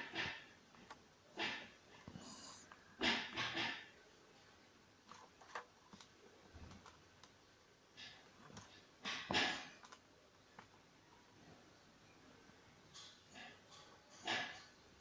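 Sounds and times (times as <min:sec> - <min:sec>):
plastic clicking and scraping: 0:05.0 - 0:07.4, 0:08.0 - 0:10.8.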